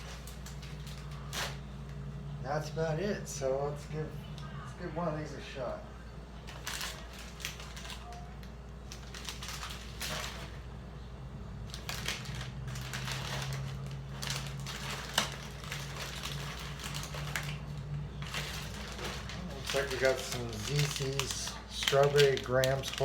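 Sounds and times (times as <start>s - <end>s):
plastic wrappers rustling and crinkling: 0.0s - 2.0s, 6.4s - 10.8s, 11.6s - 23.0s
low steady hum: 0.0s - 23.0s.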